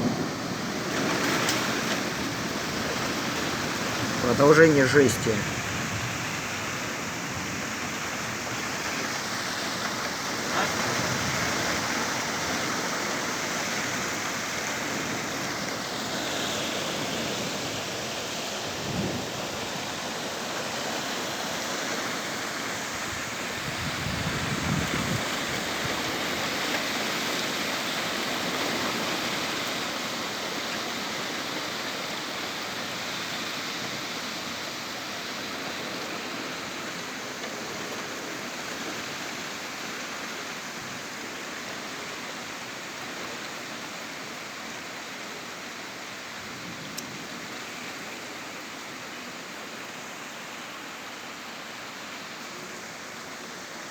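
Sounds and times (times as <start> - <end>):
low rumbles of thunder: 0.0 - 4.3
heavy rain pouring: 0.0 - 53.9.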